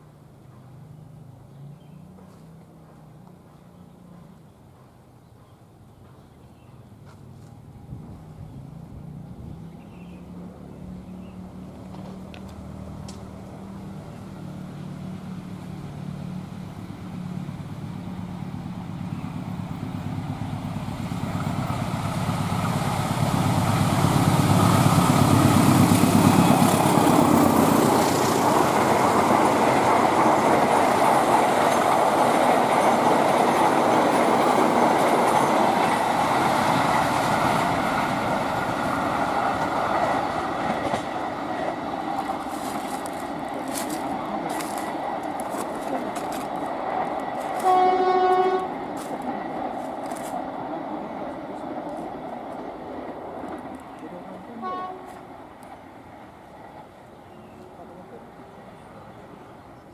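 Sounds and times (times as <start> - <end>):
diesel train engine hum: 0.0 - 59.9
train wheels rattling on rails: 16.7 - 59.8.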